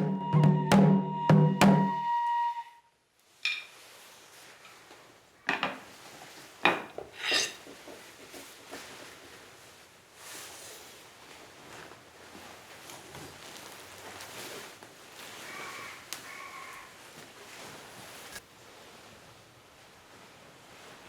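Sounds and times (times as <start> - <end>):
objects clinking and scraping: 6.6 - 8.0.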